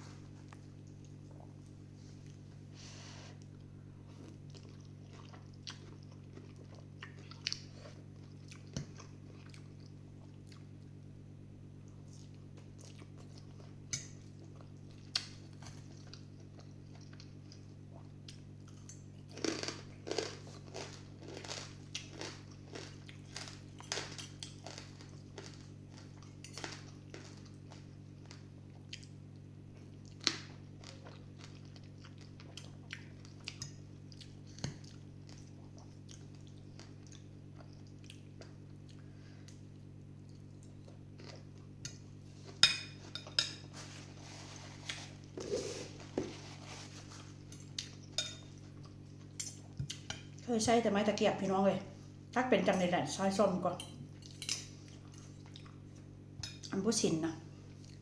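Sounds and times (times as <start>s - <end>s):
steady low hum: 0.0s - 58.0s
chewing and mouth noises: 3.4s - 10.9s, 11.9s - 42.0s, 54.2s - 56.7s.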